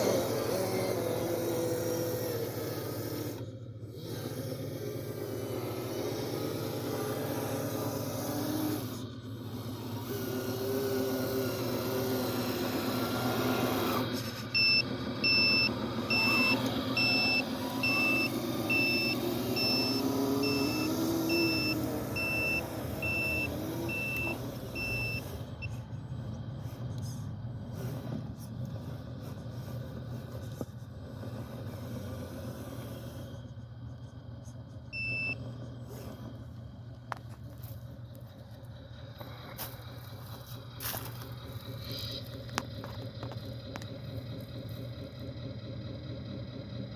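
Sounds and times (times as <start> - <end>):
heavy equipment engine running: 0.0 - 46.9
reversing alarm beeping: 14.6 - 25.8, 35.0 - 35.5.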